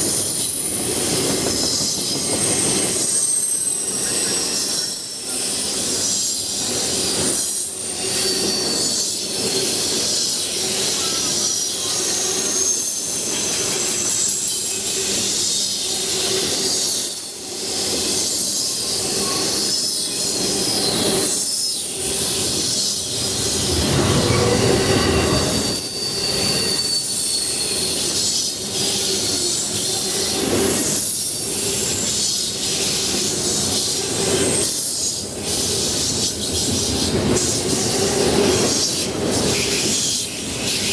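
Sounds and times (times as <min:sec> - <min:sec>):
train wheels squealing: 0:00.0 - 0:40.9
train rumble: 0:22.0 - 0:28.2.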